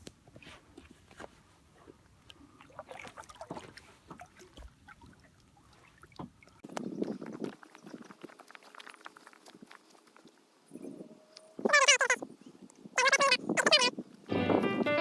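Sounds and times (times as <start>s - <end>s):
water sounds on kayak: 0.3s - 10.7s.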